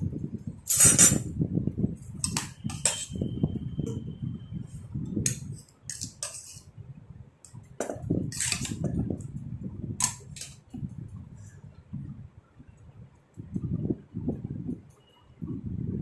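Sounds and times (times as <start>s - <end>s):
kitchen utensils clicking and scraping: 0.7s - 1.2s, 2.2s - 3.3s, 5.2s - 6.7s, 7.8s - 9.0s, 10.0s - 10.6s.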